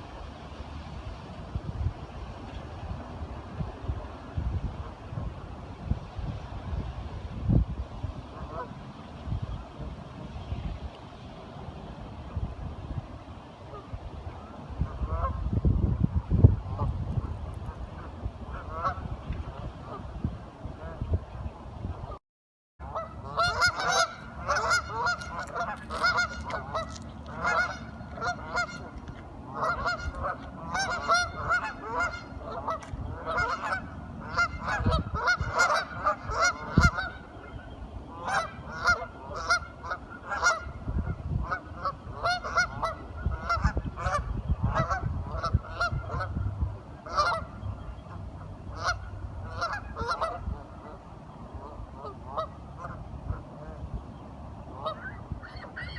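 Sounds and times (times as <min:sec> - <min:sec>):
waterfowl honking and quacking: 0:08.3 - 0:08.8, 0:13.7 - 0:15.4, 0:17.7 - 0:20.1, 0:22.8 - 0:53.8, 0:54.7 - 0:55.9.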